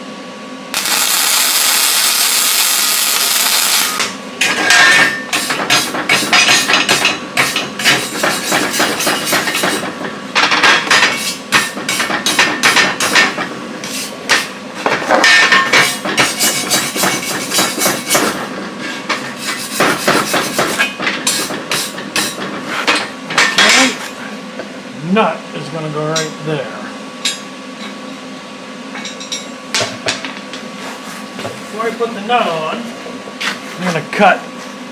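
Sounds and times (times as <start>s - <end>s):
arc welding crackle: 0.7s - 4.4s.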